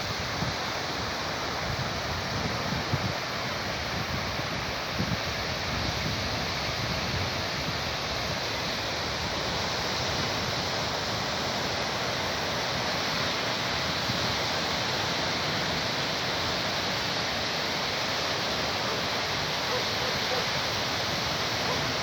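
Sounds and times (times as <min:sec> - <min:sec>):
sea surf washing onto shore: 0:00.0 - 0:22.0.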